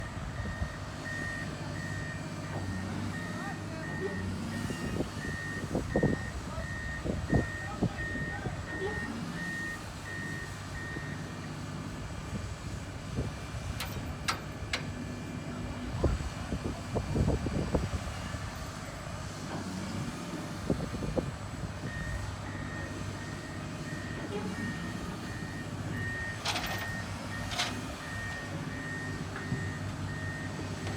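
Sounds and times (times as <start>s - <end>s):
heavy vehicle engine running: 0.0s - 30.9s
reversing alarm beeping: 0.4s - 11.3s, 21.8s - 30.9s
clanks and knocks: 26.4s - 27.9s.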